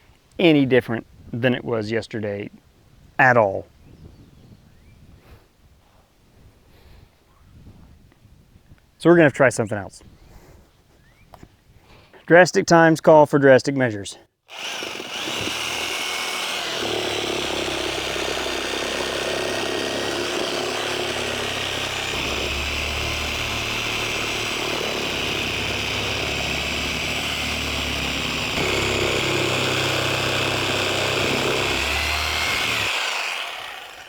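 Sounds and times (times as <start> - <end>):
power saw cutting rubber: 14.5 - 34.0.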